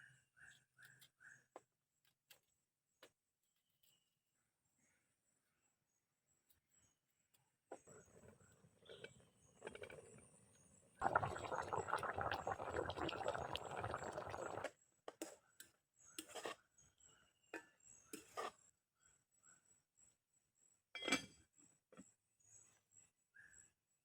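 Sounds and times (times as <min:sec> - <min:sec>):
water pouring: 0:11.0 - 0:14.7.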